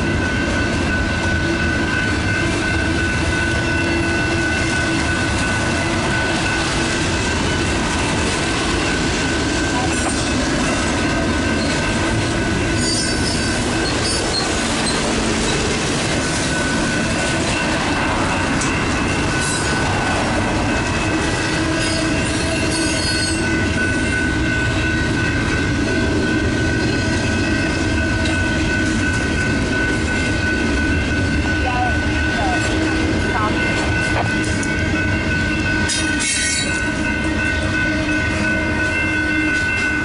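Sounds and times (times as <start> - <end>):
train wheels on rails: 0.0 - 40.0
high-pitched wheel squeal: 12.8 - 15.1, 21.6 - 23.4.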